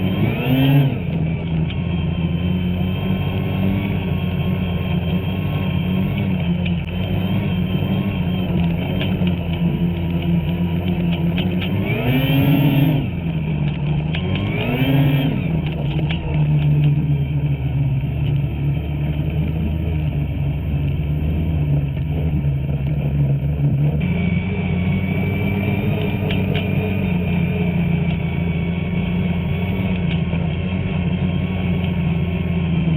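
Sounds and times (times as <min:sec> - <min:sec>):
snowmobile engine revving: 0:00.0 - 0:32.9.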